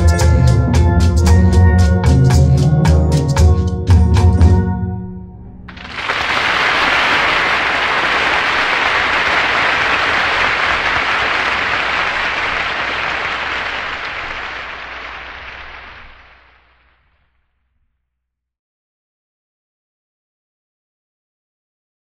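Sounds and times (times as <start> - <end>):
audience applauding: 5.7 - 16.8.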